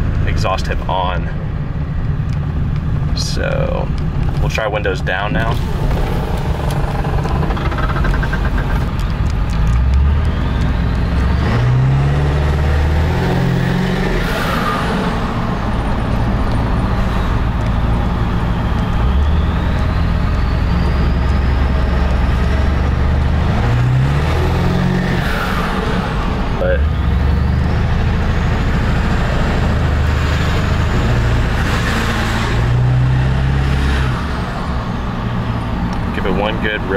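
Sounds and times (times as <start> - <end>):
diesel engine accelerating: 0.0 - 36.9
high turbo whistle: 16.8 - 22.7.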